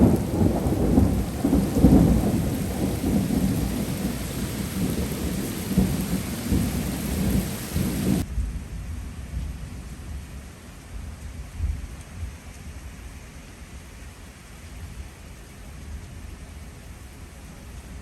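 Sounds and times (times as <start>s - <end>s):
thunder rumbling: 0.0s - 9.2s
heavy rain: 0.0s - 18.0s.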